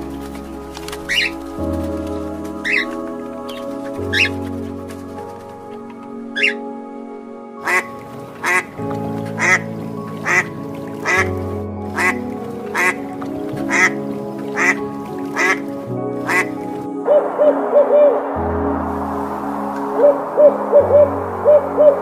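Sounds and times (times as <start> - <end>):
background music: 0.0 - 22.0
goose calling: 6.4 - 6.6, 7.6 - 8.7, 9.4 - 9.6, 10.2 - 11.2, 12.0 - 13.0.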